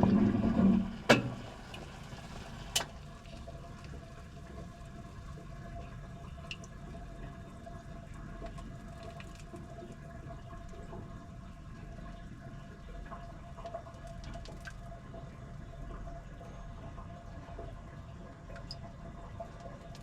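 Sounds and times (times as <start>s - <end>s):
washing machine water sloshing: 0.0s - 5.3s.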